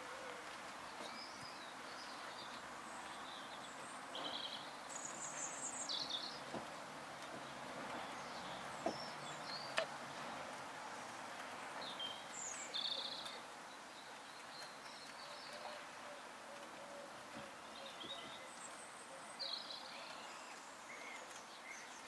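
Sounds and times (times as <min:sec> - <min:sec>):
faint hiss: 0:00.0 - 0:22.0.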